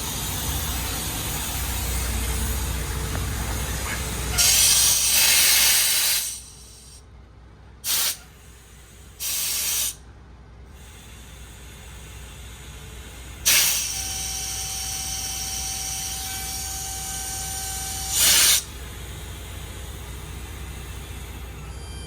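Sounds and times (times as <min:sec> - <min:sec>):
truck engine idling: 0:00.0 - 0:05.2
compressed air hissing: 0:03.9 - 0:07.0, 0:07.8 - 0:08.2, 0:09.2 - 0:10.0, 0:13.4 - 0:14.1, 0:18.1 - 0:18.8.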